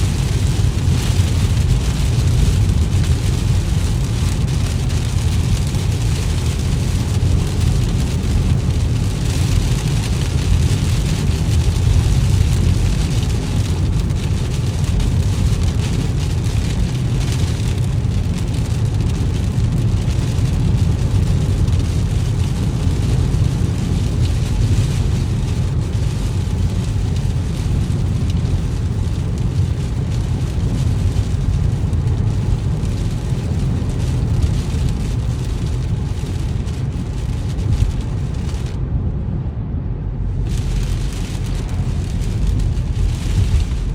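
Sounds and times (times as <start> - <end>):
tyres hissing on wet road: 0.0 - 38.7, 40.3 - 43.9
car engine and road rumble: 0.0 - 43.9
rain on a car: 0.0 - 43.9.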